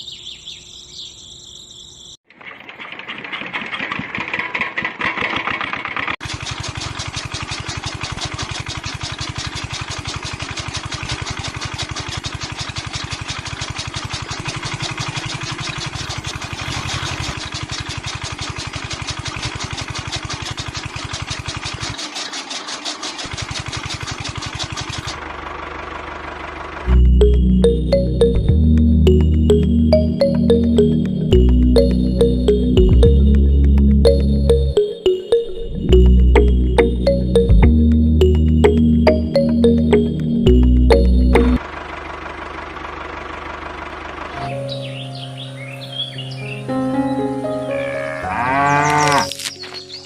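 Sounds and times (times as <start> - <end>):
small engine chugging: 2.3 - 28.4, 35.9 - 46.1
music: 26.9 - 41.6, 44.4 - 48.3.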